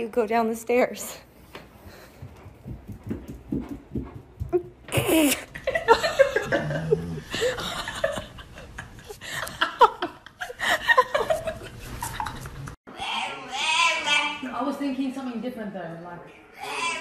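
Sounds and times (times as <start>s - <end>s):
woman laughing: 4.9s - 12.7s.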